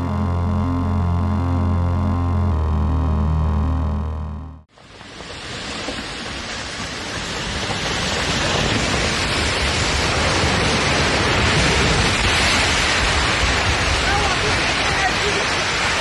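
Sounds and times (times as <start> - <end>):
background music: 0.0 - 4.7.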